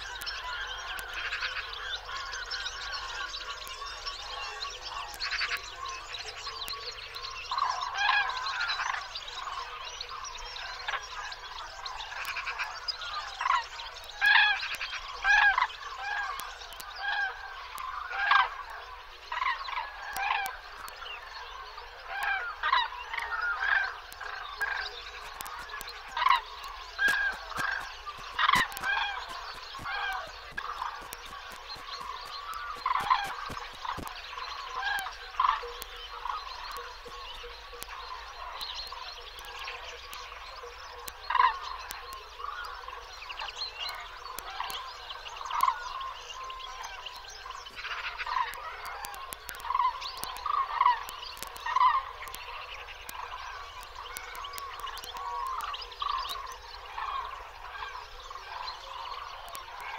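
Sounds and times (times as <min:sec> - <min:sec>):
faint clicks: 0:00.0 - 0:09.6, 0:10.8 - 0:59.9
flock of birds calling: 0:00.0 - 0:59.9.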